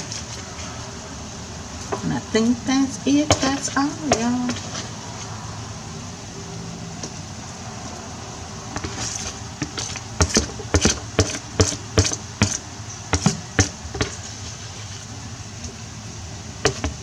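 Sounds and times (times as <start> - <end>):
low background hum: 0.0 - 17.0
utensil knocking against a dish: 3.2 - 4.7, 8.8 - 14.1.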